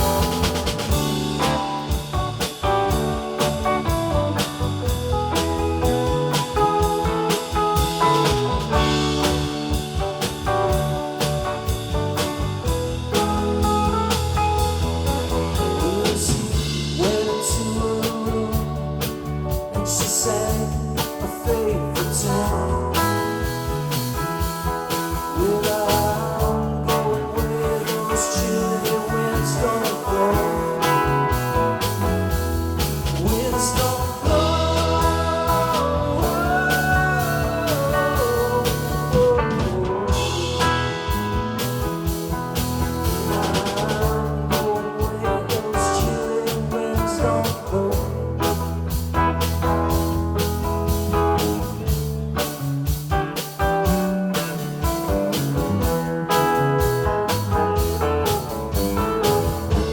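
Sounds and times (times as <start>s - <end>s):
electric guitar lead with bends: 0.0s - 18.5s
bass guitar: 0.0s - 59.9s
drum kit steady beat: 0.0s - 59.9s.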